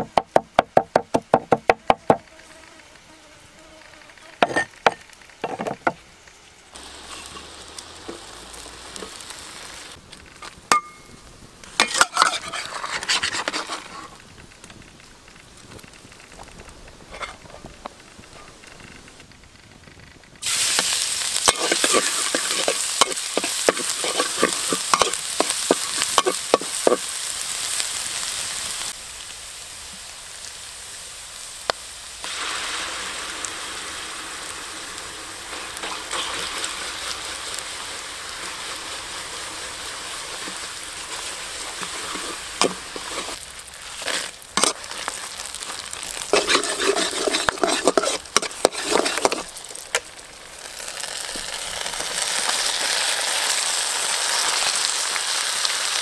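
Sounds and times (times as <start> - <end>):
metal spatula scraping a wok: 4.4 - 5.6, 7.0 - 7.5, 11.8 - 14.2, 17.1 - 17.5, 20.7 - 27.1, 35.5 - 36.7, 40.2 - 50.0
garlic sizzling in hot oil: 6.3 - 14.2, 20.4 - 56.0.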